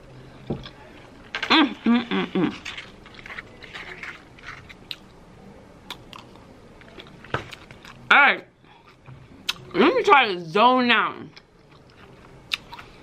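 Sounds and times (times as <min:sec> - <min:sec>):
person chewing: 0:01.4 - 0:05.2, 0:05.9 - 0:08.1, 0:08.7 - 0:09.7, 0:11.3 - 0:13.0.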